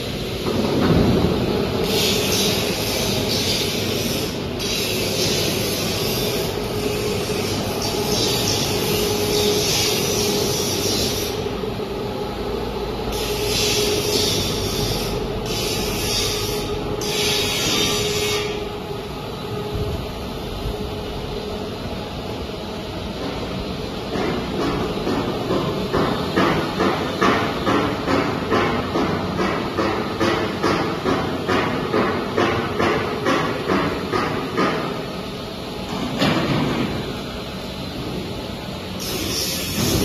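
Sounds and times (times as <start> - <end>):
diesel generator humming: 0.0 - 24.1
high rushing hiss: 1.8 - 11.5.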